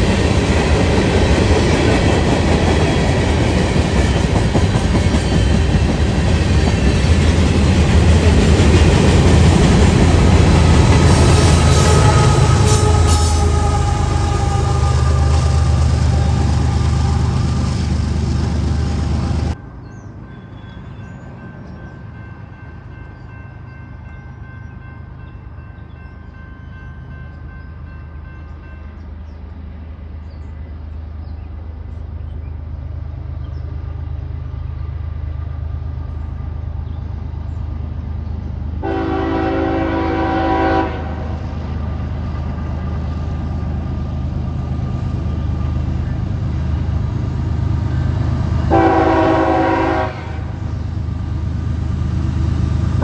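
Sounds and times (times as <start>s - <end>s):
diesel locomotive engine drone: 0.0s - 53.0s
loud train noise: 0.0s - 53.0s
multi-note air horn: 11.1s - 17.5s, 38.8s - 41.3s, 48.7s - 50.6s.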